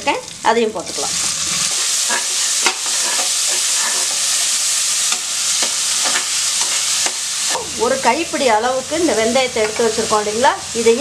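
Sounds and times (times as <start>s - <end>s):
vegetables sizzling in hot fat: 0.0s - 11.0s.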